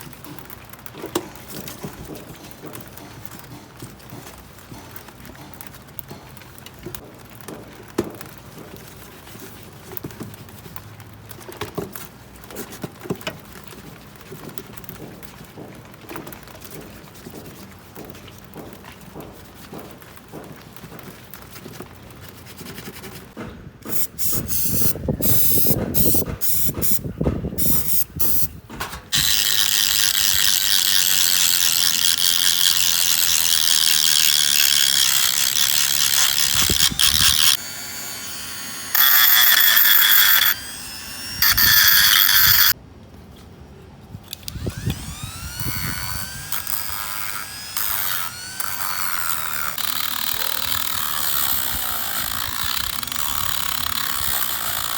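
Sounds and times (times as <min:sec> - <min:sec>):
ratcheting clicks and knocks: 0:23.9 - 0:37.6, 0:41.4 - 0:42.8, 0:44.4 - 0:54.9.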